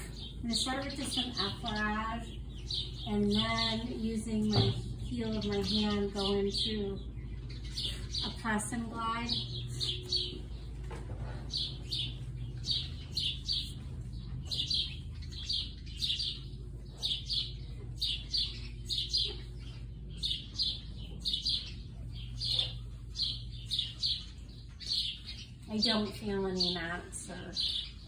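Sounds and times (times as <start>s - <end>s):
steady low hum: 0.0s - 28.0s
small bird chirping: 11.4s - 26.9s.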